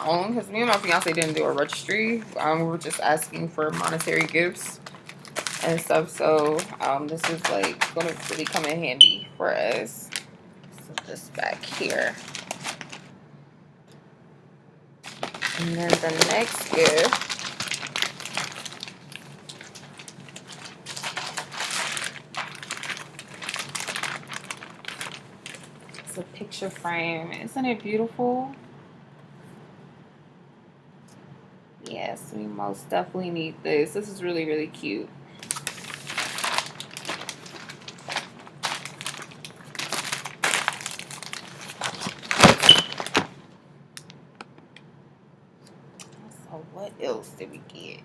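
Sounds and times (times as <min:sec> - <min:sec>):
gift packaging rustling: 0:00.0 - 0:13.1, 0:15.0 - 0:26.8, 0:35.4 - 0:43.4.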